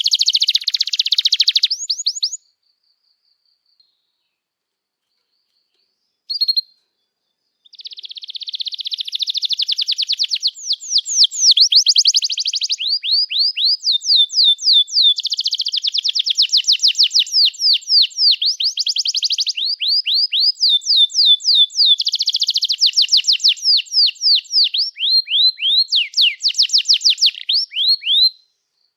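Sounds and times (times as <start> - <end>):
canary singing trills: 0.0 - 2.5, 5.0 - 28.9
short bird chirp: 5.0 - 15.8.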